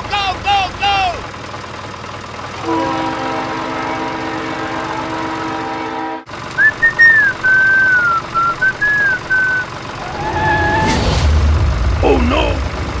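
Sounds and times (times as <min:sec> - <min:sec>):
toy train horn: 0:02.6 - 0:06.3
whistled tune: 0:06.5 - 0:09.7
rumbling hum: 0:06.5 - 0:13.0.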